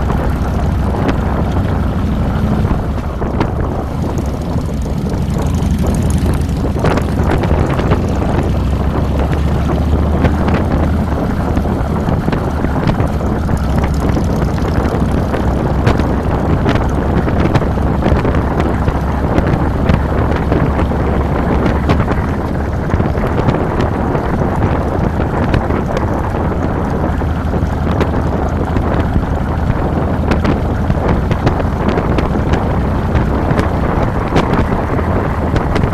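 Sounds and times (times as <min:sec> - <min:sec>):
motorcycle engine running: 0:00.0 - 0:35.9
wind buffeting microphone: 0:00.0 - 0:35.9.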